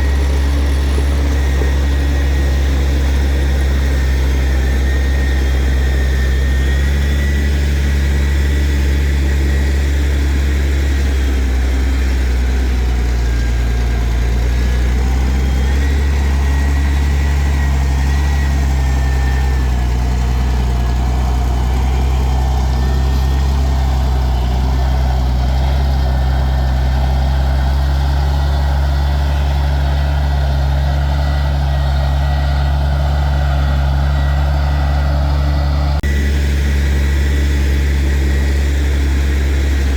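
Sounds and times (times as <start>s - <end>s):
high whine: 0.0s - 25.7s, 35.8s - 39.9s
diesel engine droning: 0.0s - 39.9s.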